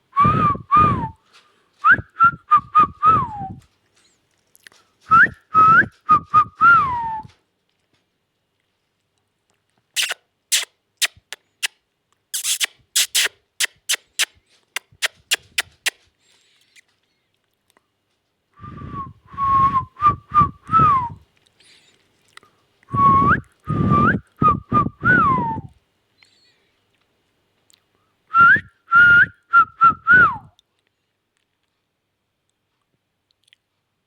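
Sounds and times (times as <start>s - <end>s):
whistled tune: 0.2s - 1.2s, 1.8s - 3.6s, 5.1s - 7.3s, 18.6s - 21.2s, 22.9s - 25.7s, 28.3s - 30.5s.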